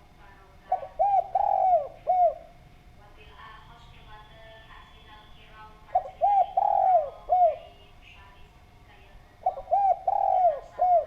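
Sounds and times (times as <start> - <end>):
dove cooing: 0.7 - 2.6, 5.8 - 7.8, 9.4 - 11.0.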